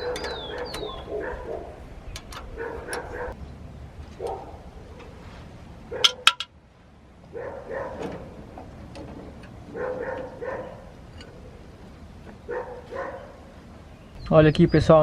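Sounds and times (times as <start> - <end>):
sharp metallic clicks: 0.0 - 1.0
distant dog barking: 0.0 - 3.4, 4.1 - 5.2, 5.9 - 6.4, 7.3 - 8.4, 9.7 - 11.5, 12.4 - 13.6.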